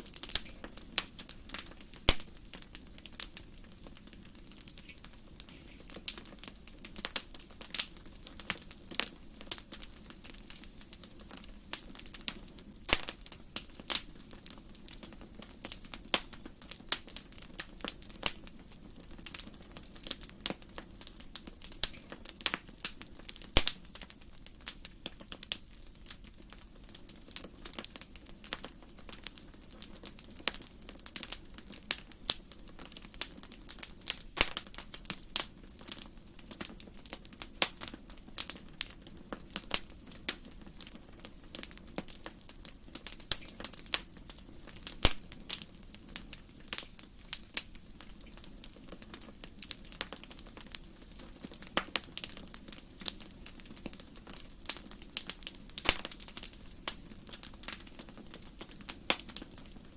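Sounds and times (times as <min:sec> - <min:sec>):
faint low hiss: 0:00.0 - 0:59.9
wood fire crackling and popping: 0:00.0 - 0:59.9.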